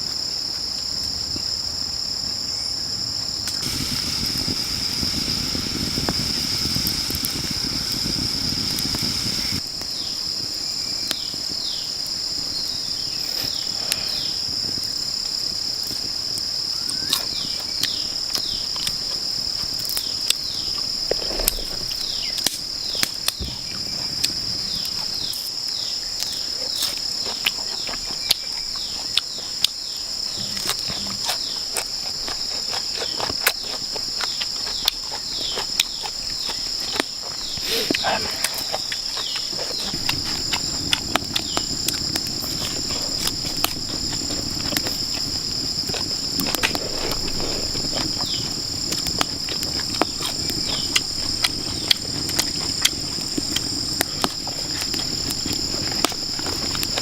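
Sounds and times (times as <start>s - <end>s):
chorus of insects: 0.0s - 57.0s
low rumbling noise: 3.5s - 9.6s, 39.7s - 57.0s.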